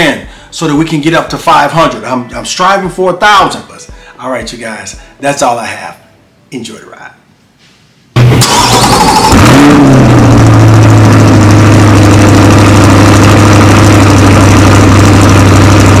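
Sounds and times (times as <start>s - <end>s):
car engine starting and idling: 8.2s - 16.0s.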